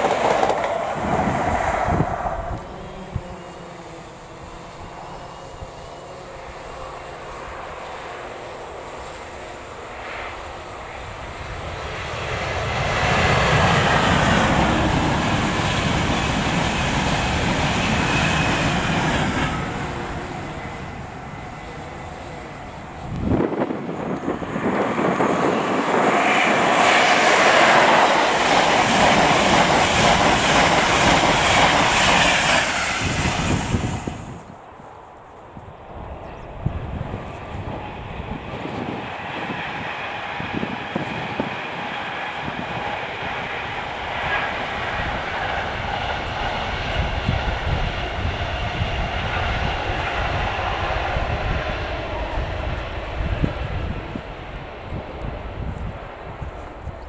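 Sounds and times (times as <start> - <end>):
train passing at speed: 0.0 - 57.0
wind buffeting microphone: 0.0 - 57.0.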